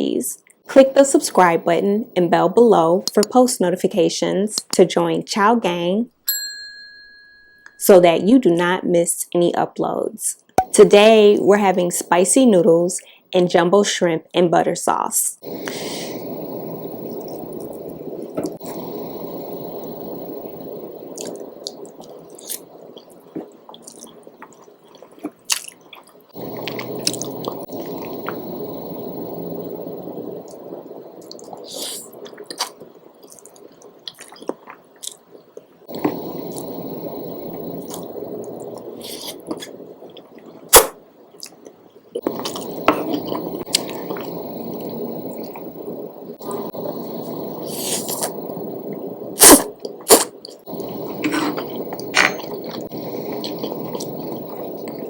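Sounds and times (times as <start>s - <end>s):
wet chewing: 21.2s - 28.5s, 31.4s - 36.8s, 38.7s - 44.5s.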